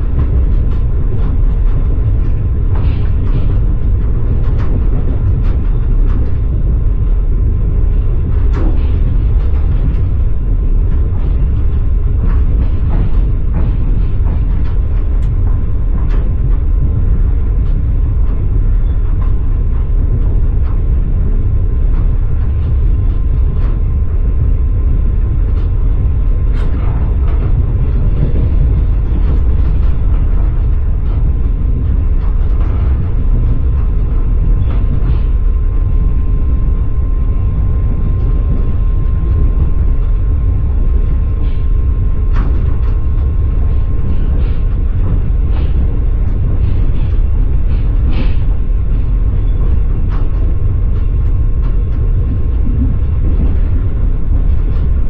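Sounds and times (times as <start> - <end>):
train carriage rumble: 0.0 - 55.0.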